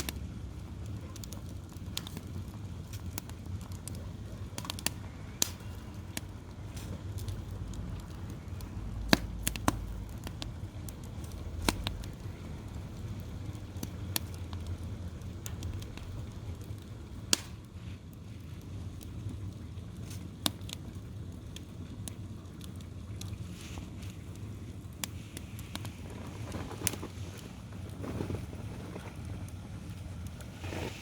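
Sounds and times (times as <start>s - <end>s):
sharp fire pops: 0.0s - 19.2s, 19.9s - 31.0s
steady low rumble: 0.0s - 20.0s
wood fire crackling: 0.0s - 31.0s.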